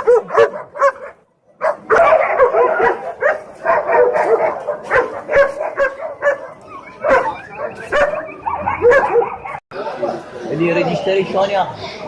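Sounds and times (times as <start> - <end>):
dogs yipping and barking: 0.0 - 9.6.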